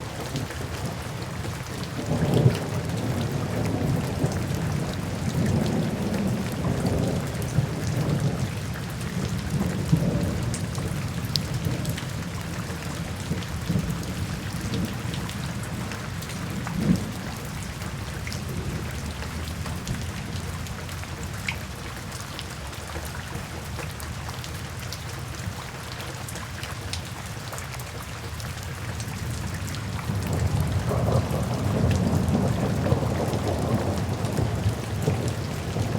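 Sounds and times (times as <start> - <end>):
steady rain: 0.0 - 35.9
rolling thunder: 1.9 - 20.5, 29.2 - 35.9
sharp thunderclap: 30.1 - 35.9.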